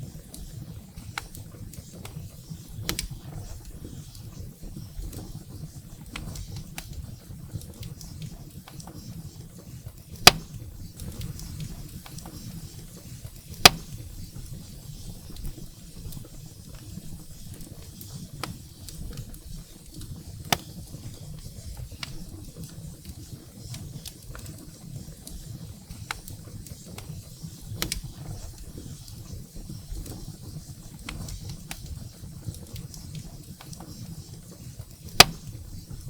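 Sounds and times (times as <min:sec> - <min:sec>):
wood fire rumbling and hissing: 0:00.0 - 0:36.0
loud pops from burning firewood: 0:00.4 - 0:04.0, 0:10.0 - 0:24.6, 0:25.9 - 0:36.0.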